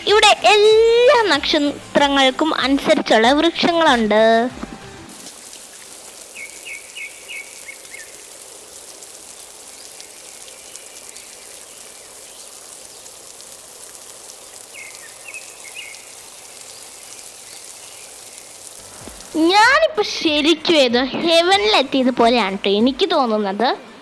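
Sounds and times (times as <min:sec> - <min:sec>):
steady high hiss: 0:00.0 - 0:24.0
bird chirping: 0:05.7 - 0:08.2, 0:14.7 - 0:18.4.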